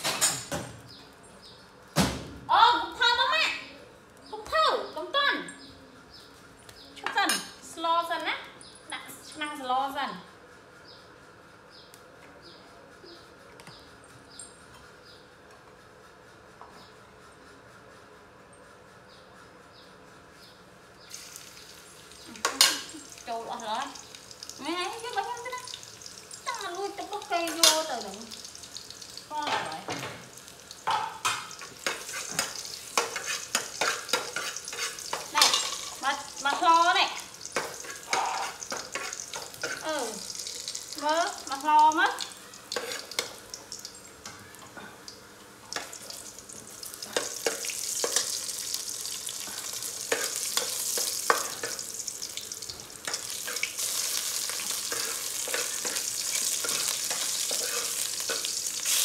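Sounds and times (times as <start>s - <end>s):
food sizzling in a pot: 21.1s - 59.0s
metal ladle scraping a pot: 37.8s - 39.8s.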